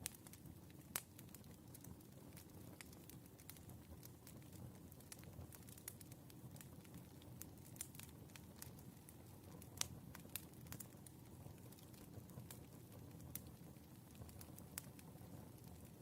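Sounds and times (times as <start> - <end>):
firewood crackling and popping: 0.0 - 16.0
low steady fire rumble: 0.0 - 16.0.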